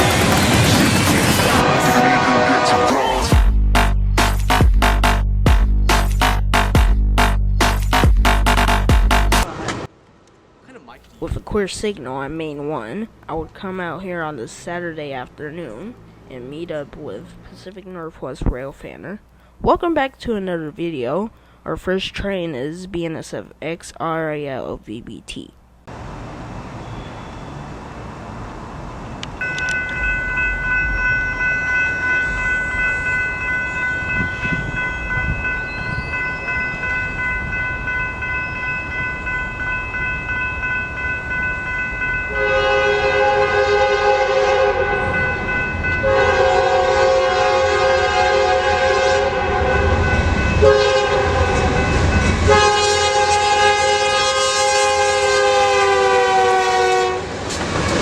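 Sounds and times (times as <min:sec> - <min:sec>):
locomotive horn blasts: 0:01.4 - 0:03.9, 0:42.3 - 0:45.4, 0:46.0 - 0:58.0
crossing warning bell ringing: 0:13.7 - 0:16.8, 0:29.0 - 0:57.1.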